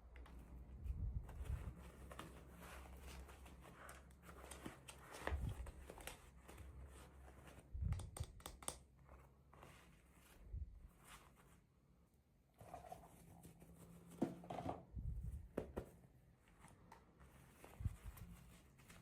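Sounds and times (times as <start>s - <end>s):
plastic and paper crinkling: 1.2s - 7.7s, 16.5s - 19.0s.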